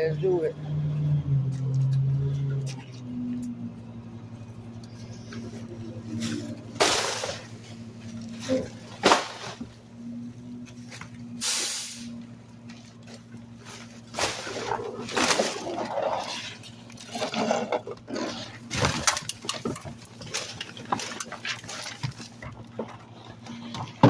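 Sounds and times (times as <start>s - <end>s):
garbage truck engine running: 0.0s - 24.0s
short bursts of hiss: 11.4s - 12.1s.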